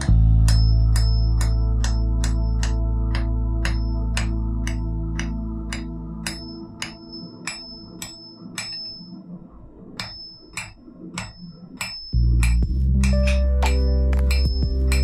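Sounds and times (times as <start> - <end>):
hammer striking steel on anvil: 3.6 - 9.0, 10.0 - 15.0
anvil ringing: 10.0 - 15.0.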